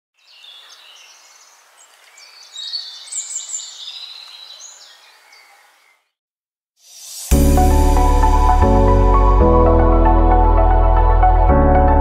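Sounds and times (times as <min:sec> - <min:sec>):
birds calling and chirping: 0:00.2 - 0:06.2
steady hiss: 0:06.8 - 0:07.7.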